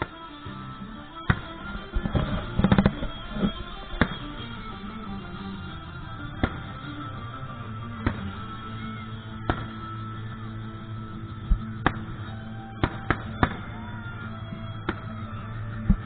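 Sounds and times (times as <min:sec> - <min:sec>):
background music: 0:00.0 - 0:16.0
fireworks bangs: 0:01.3 - 0:07.4.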